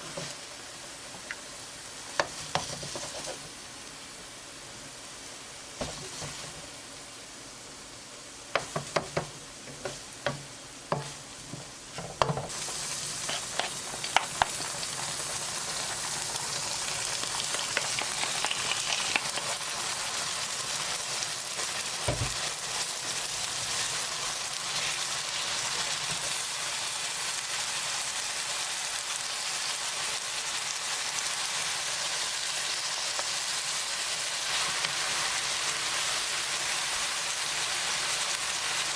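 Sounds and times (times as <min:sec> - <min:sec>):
food sizzling in hot pan: 0:00.0 - 0:38.9.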